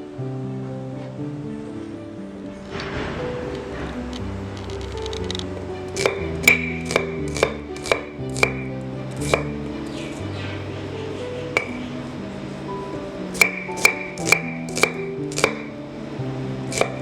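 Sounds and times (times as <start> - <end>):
soft instrumental music: 0.0 - 17.0
knife chopping on cutting board: 5.9 - 9.5, 13.4 - 15.7, 16.7 - 17.0.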